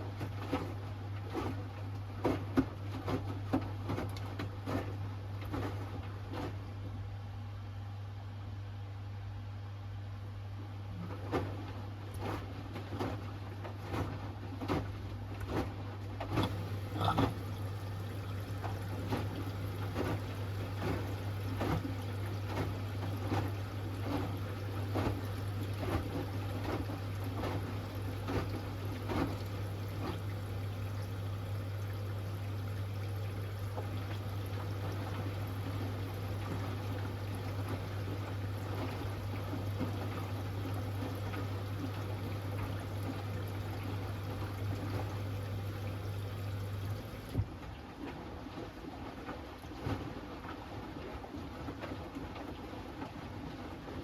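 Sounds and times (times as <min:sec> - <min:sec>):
water pouring in washing machine: 0:00.0 - 0:06.6, 0:12.1 - 0:47.5
washing machine hum: 0:00.0 - 0:54.0
water splashes: 0:16.3 - 0:47.4.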